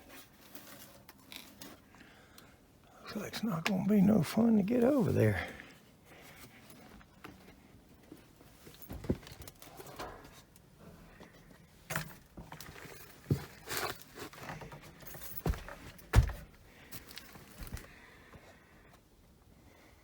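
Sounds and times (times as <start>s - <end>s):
knocks and bumps: 15.2s - 16.6s.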